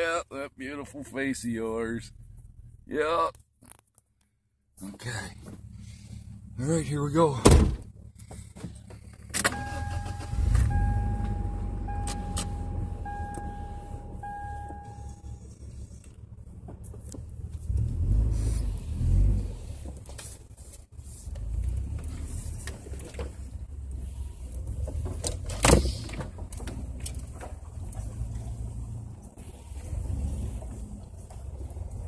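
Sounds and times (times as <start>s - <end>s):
vehicle engine running: 0.4s - 2.9s, 4.8s - 32.0s
engine revving: 9.4s - 16.6s, 17.4s - 20.0s, 26.6s - 32.0s
warning chime beeping: 9.5s - 15.4s.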